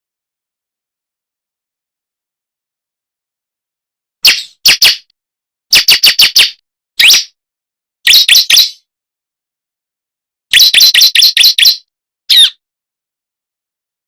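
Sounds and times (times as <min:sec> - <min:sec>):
bird high chirping: 0:04.2 - 0:05.1, 0:05.7 - 0:07.4, 0:08.1 - 0:08.8, 0:10.5 - 0:12.6.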